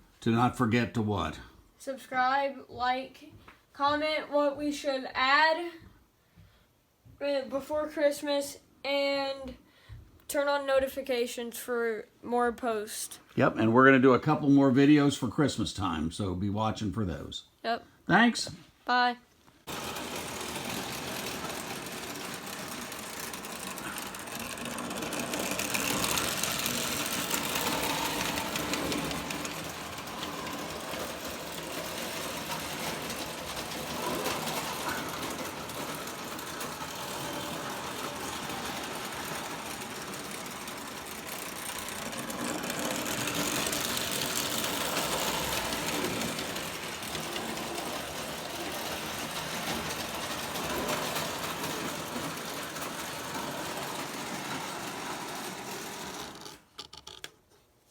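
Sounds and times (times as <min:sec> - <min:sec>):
model train motor whirring: 0:19.6 - 0:57.2
model train wheel clatter: 0:19.6 - 0:57.5.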